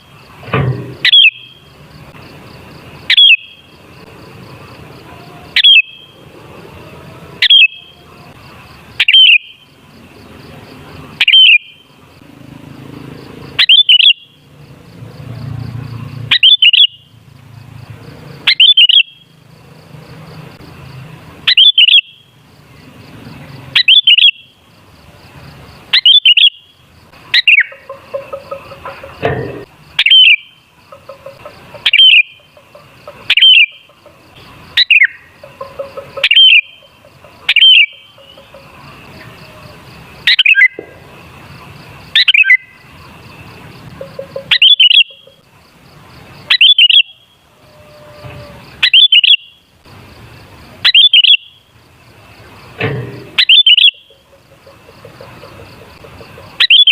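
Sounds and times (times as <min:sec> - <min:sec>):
bird singing chirpy phrases: 0:01.0 - 0:01.6, 0:03.0 - 0:03.7, 0:05.5 - 0:06.1, 0:07.4 - 0:08.0, 0:08.9 - 0:09.6, 0:11.2 - 0:11.8, 0:13.6 - 0:14.4, 0:16.3 - 0:17.1, 0:18.5 - 0:19.3, 0:21.5 - 0:22.3, 0:23.8 - 0:24.5, 0:25.9 - 0:28.7, 0:29.9 - 0:32.4, 0:33.1 - 0:38.6, 0:40.3 - 0:40.8, 0:42.2 - 0:42.8, 0:44.0 - 0:45.3, 0:46.5 - 0:47.3, 0:48.8 - 0:49.6, 0:50.8 - 0:51.6, 0:53.4 - 0:54.3, 0:56.6 - 0:56.9.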